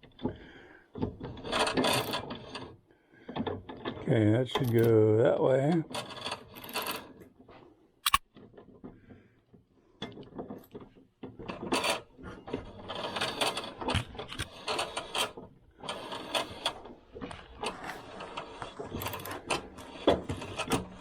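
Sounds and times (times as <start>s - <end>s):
metal parts clinking and rattling: 8.0s - 8.2s, 12.8s - 21.0s
sharp click: 8.0s - 8.2s.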